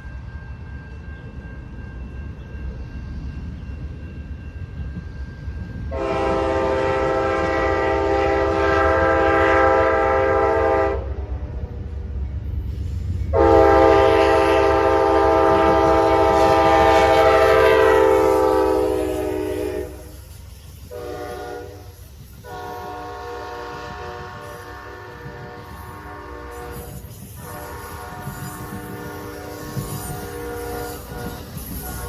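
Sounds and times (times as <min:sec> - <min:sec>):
passing train rumble: 0:00.0 - 0:32.0
locomotive air horn blasts: 0:05.9 - 0:11.5, 0:13.3 - 0:20.2, 0:20.9 - 0:32.0.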